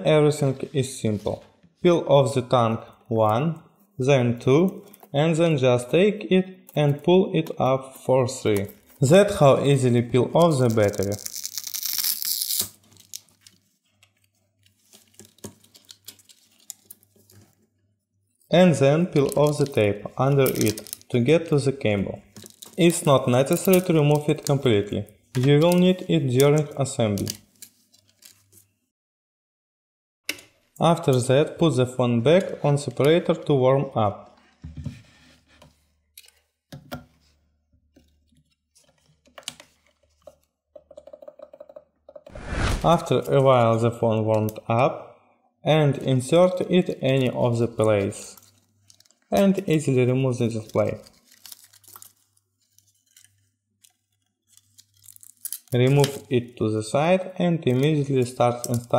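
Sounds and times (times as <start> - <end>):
adhesive strips tearing: 10.4 - 13.6, 20.4 - 21.1, 54.5 - 56.1
small parts clicking and rustling: 10.7 - 17.6, 20.4 - 21.2, 22.3 - 24.6, 38.0 - 42.3, 48.3 - 49.4, 50.7 - 56.2.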